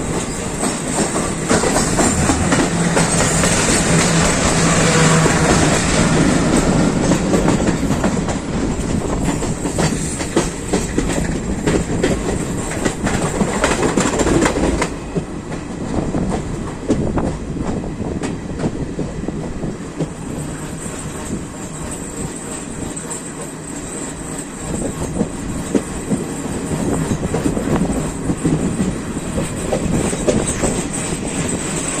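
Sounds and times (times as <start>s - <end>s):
train wheels clattering on rails: 0.0s - 32.0s.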